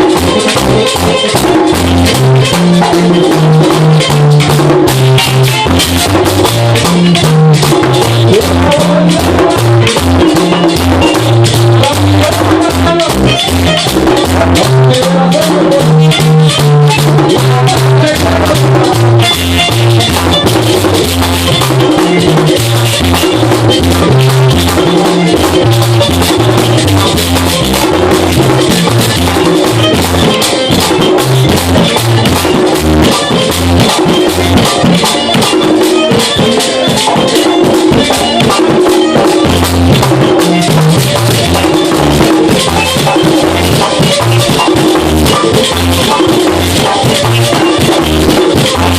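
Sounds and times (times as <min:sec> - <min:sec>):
electric bass walking: 0:00.0 - 0:48.9
guira scraping rhythm: 0:00.0 - 0:48.9
tambora drum: 0:00.0 - 0:48.9.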